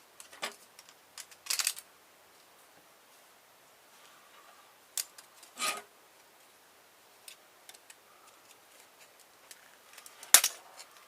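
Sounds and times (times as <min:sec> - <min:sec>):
plastic parts snapping: 0:00.2 - 0:01.8, 0:07.3 - 0:10.6.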